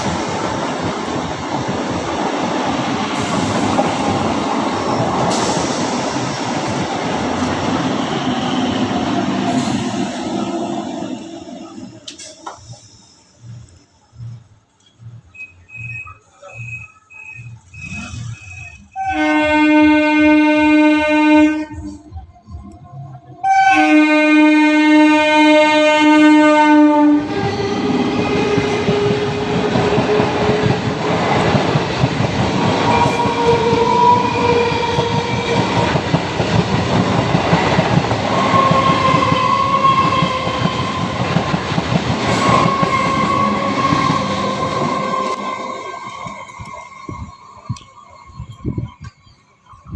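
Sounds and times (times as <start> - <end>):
train wheels rumbling and clacking: 0.0 - 49.9
train horn blasts: 17.9 - 22.0, 23.4 - 27.3, 42.3 - 46.0.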